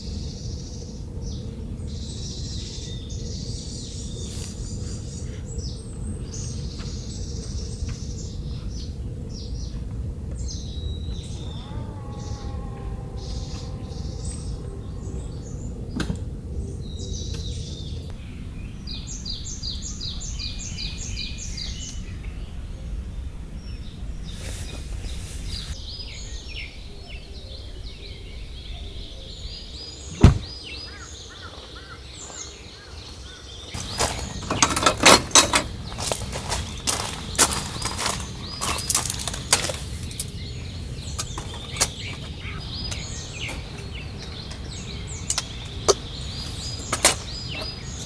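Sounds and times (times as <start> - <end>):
sharp knock: 30.1 - 30.5
clicks and knocks: 33.8 - 40.2.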